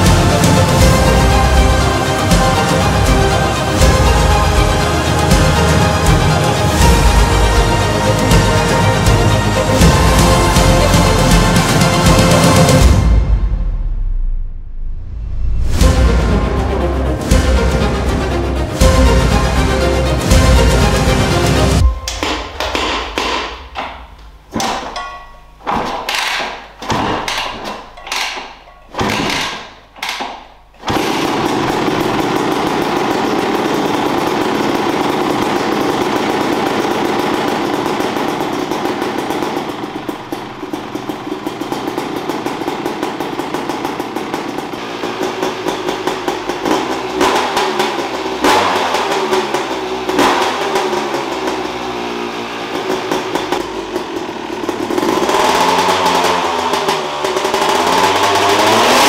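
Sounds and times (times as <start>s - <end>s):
two-stroke engine running: 0.0s - 13.2s, 30.8s - 59.0s
engine starting bursts: 25.8s - 59.0s
engine throttle blips: 29.8s - 59.0s.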